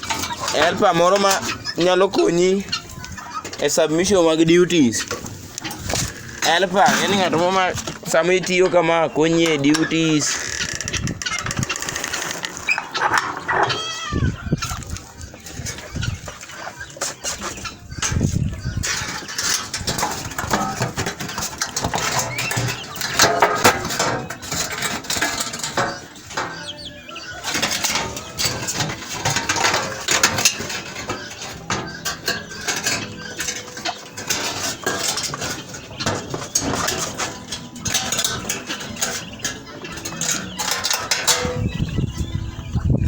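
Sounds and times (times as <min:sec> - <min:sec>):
hard objects clinking and clattering: 0:00.0 - 0:01.9, 0:14.6 - 0:42.0.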